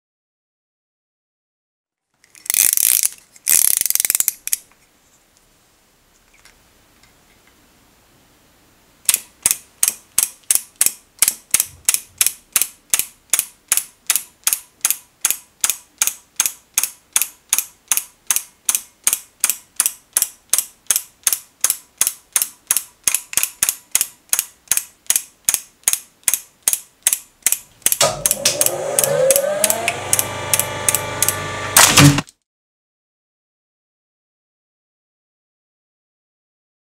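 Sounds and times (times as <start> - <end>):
mechanical ratchet clicking: 2.3 - 4.6, 9.1 - 31.4
whirring with sliding tones: 28.0 - 31.8.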